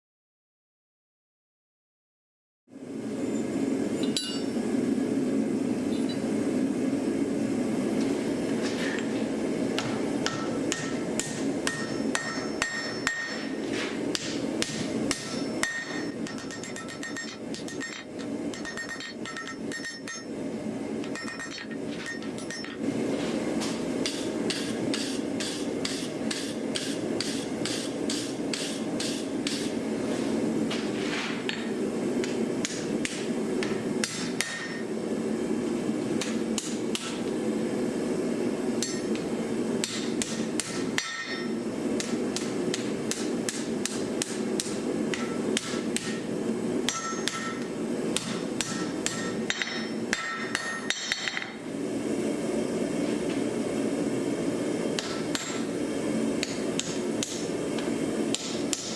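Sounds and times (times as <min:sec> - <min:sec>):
hammer striking iron on anvil: 0:04.0 - 0:04.6, 0:09.8 - 0:20.3, 0:24.1 - 0:29.7, 0:31.5 - 0:34.9, 0:36.2 - 0:37.2, 0:38.8 - 0:39.2, 0:39.8 - 0:46.3, 0:46.9 - 0:51.6, 0:55.0 - 0:55.7, 0:56.4 - 0:57.5, 0:58.3 - 0:58.9.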